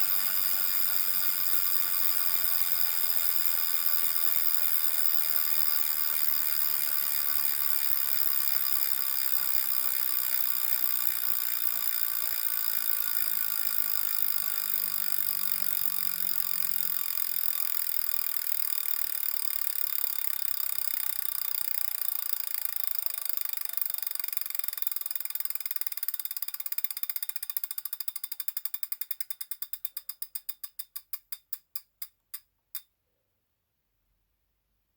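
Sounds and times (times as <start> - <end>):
flywheel whirring hum: 0.0 - 29.5.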